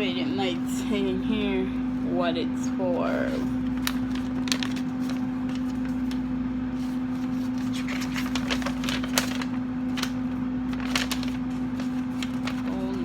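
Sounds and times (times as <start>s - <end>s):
air fryer humming: 0.0s - 13.0s
paper pages crackling: 3.2s - 13.0s.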